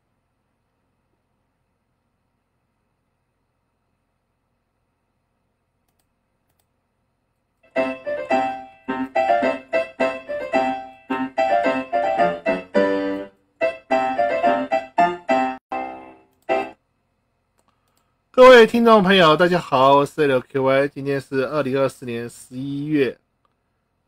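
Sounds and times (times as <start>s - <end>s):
solo piano music: 7.7s - 16.8s.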